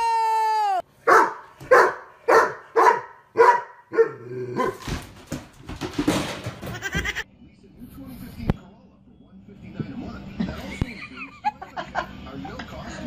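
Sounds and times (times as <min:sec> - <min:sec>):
dog barking: 0:01.1 - 0:04.9
rustling and scuffling: 0:04.7 - 0:07.2.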